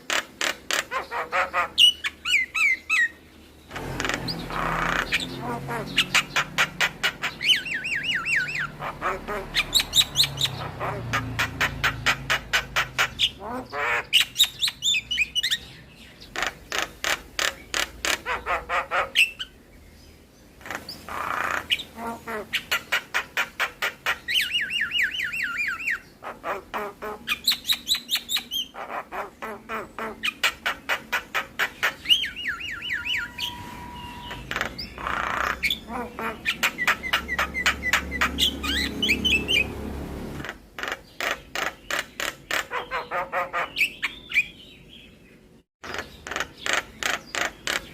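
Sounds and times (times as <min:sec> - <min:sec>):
myna song with clicks and whistles: 0:32.1 - 0:35.0.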